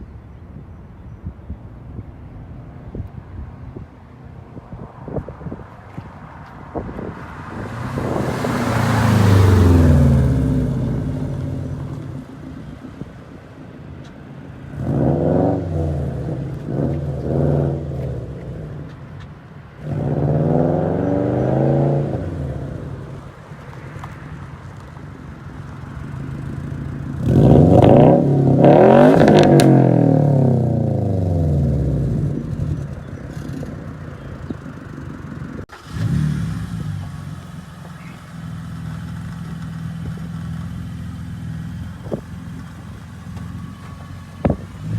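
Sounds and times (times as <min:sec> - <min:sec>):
car engines revving in flybys: 0:06.6 - 0:12.6, 0:14.6 - 0:24.5, 0:26.0 - 0:44.9.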